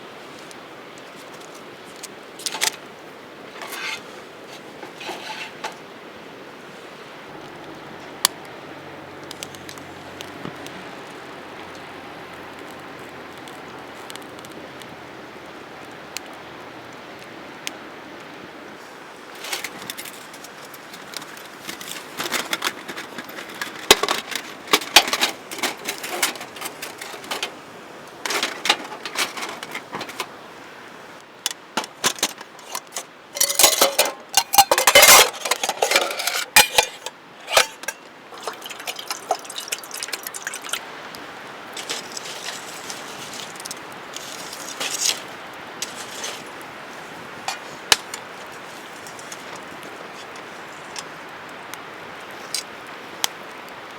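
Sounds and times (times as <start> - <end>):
faint steady hiss: 0.0 - 53.9
hard objects clinking and knocking: 31.5 - 40.8.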